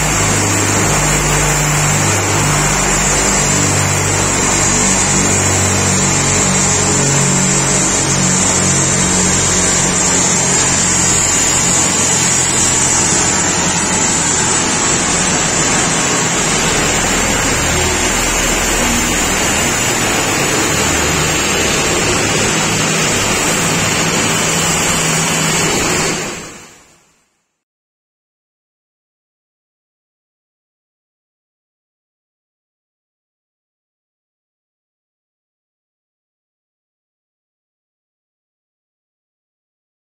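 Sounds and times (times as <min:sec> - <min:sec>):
diesel engine running hard: 0:00.0 - 0:26.8
tyres on dynamometer rollers: 0:00.0 - 0:26.8.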